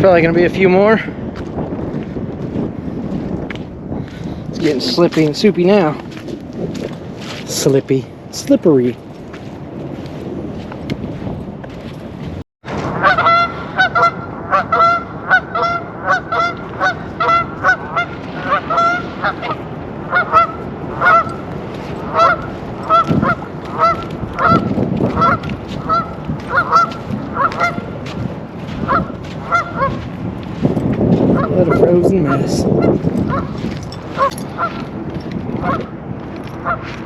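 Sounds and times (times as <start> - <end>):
low rushing noise: 4.5 - 37.0
geese honking: 12.9 - 28.0, 28.8 - 30.1, 31.3 - 34.9, 35.6 - 35.9, 36.6 - 37.0.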